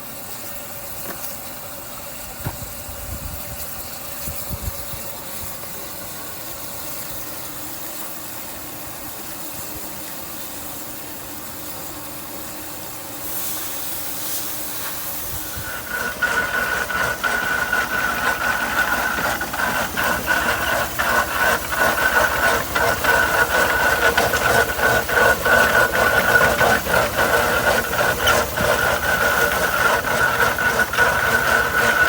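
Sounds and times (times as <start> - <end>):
steam traction engine running: 0.0 - 32.0
knocks and clanks: 15.8 - 32.0.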